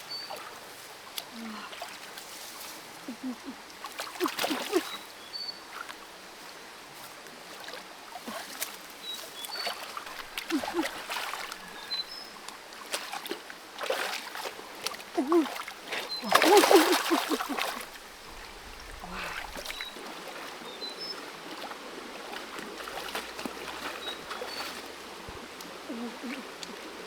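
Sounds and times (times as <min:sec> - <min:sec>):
water splashing in a creek: 0:00.0 - 0:27.0
person exclaiming: 0:15.2 - 0:15.6, 0:16.2 - 0:17.6.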